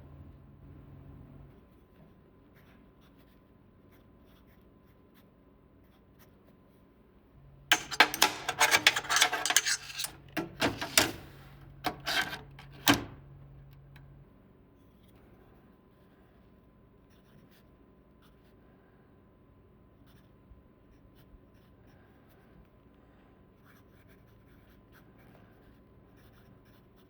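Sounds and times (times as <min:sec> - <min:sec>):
hard objects clattering and clicking: 0:07.7 - 0:13.2.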